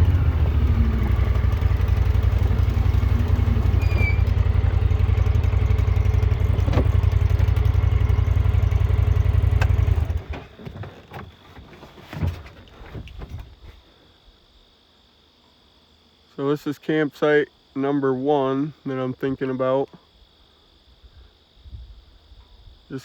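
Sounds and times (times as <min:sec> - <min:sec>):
utility vehicle engine rumbling: 0:00.0 - 0:13.6.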